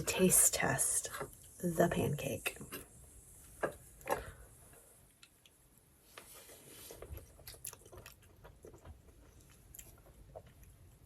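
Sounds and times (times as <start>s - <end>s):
faint chewing: 3.7s - 11.0s.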